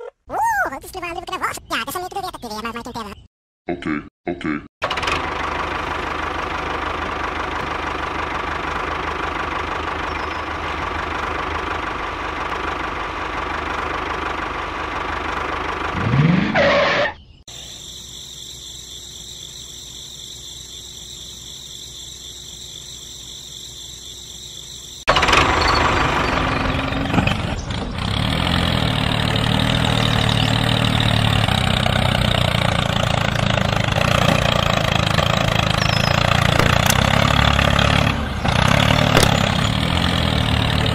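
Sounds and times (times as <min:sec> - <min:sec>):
mini tractor motor running: 0:27.5 - 0:40.9.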